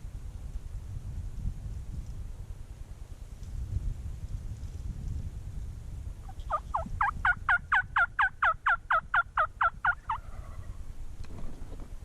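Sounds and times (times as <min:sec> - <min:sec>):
turkey yelping: 0:06.3 - 0:10.7.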